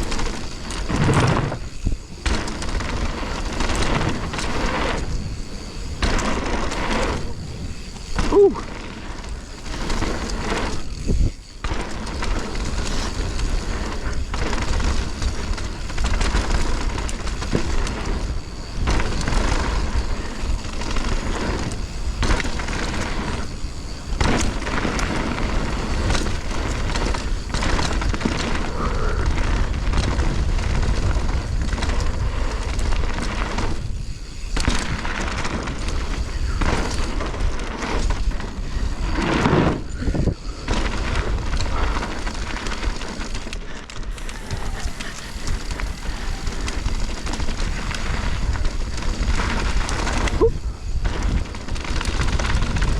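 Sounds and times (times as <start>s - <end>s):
bike rattling and knocking: 0.0s - 52.9s
bike tyre noise on dirt: 0.0s - 52.9s
wind buffeting microphone: 0.0s - 52.9s.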